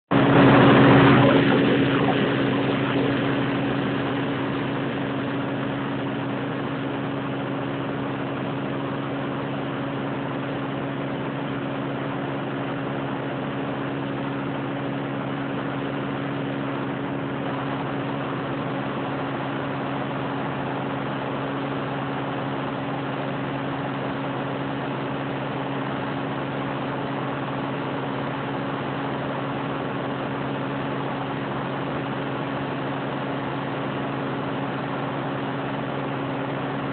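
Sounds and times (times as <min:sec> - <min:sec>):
harvester engine humming: 0:00.1 - 0:07.2.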